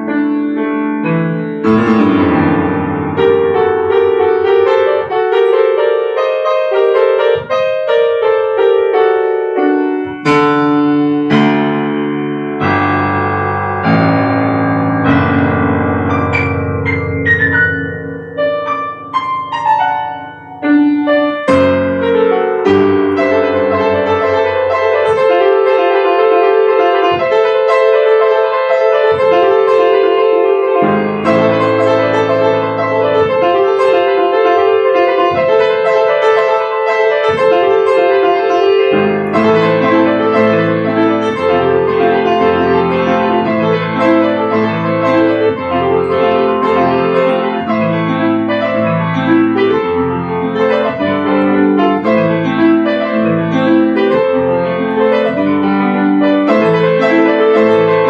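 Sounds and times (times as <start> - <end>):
solo piano: 0.0 - 58.0.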